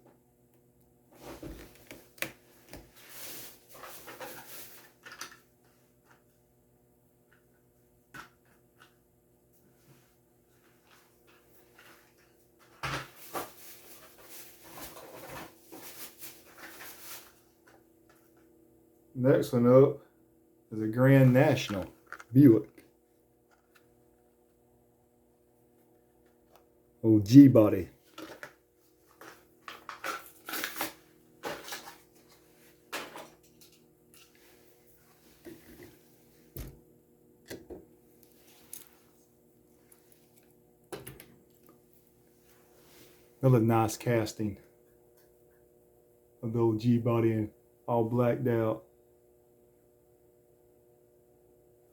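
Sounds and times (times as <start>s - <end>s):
faint steady hum: 0.0s - 51.9s
packaging crinkling and rustling: 28.0s - 32.4s.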